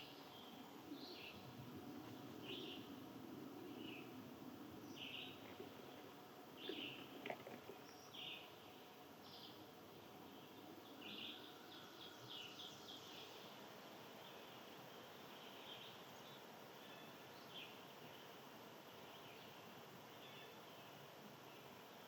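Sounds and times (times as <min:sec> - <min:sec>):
soft background hiss: 0:00.0 - 0:22.0
faint bird chirps: 0:02.1 - 0:03.0, 0:04.8 - 0:13.6.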